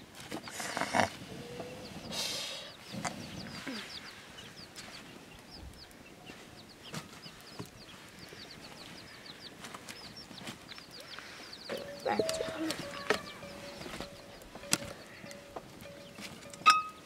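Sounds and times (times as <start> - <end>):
high bird chirps: 2.6 - 17.0.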